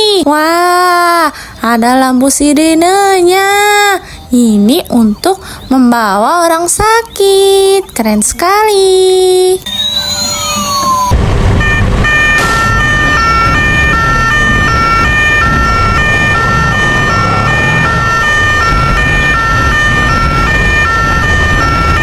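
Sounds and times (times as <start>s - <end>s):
short falling whistle: 9.6s - 13.2s
toy siren hi-lo wail: 9.6s - 22.0s
low rumble: 10.1s - 22.0s.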